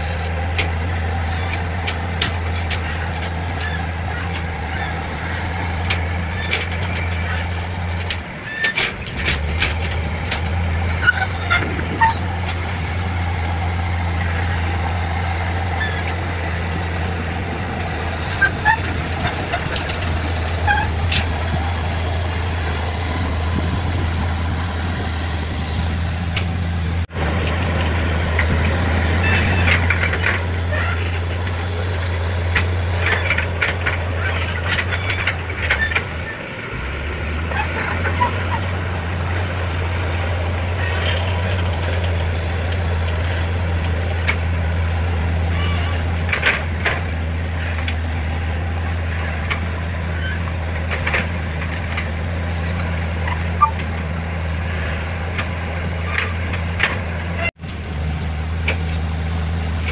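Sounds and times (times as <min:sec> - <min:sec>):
excavator diesel engine: 0:00.0 - 0:59.9
short high squeaks: 0:10.9 - 0:12.3, 0:18.4 - 0:21.0, 0:37.5 - 0:38.8, 0:52.6 - 0:53.8
metal clanks: 0:28.3 - 0:44.8.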